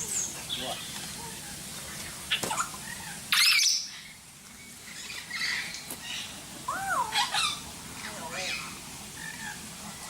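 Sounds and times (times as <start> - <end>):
bird chirps and calls: 0.0 - 10.0
bird harsh squawk: 2.4 - 4.0.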